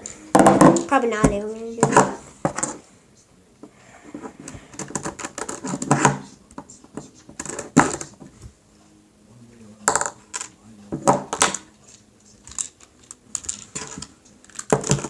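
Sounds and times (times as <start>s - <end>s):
plastic cube pieces clicking: 12.5s - 15.0s.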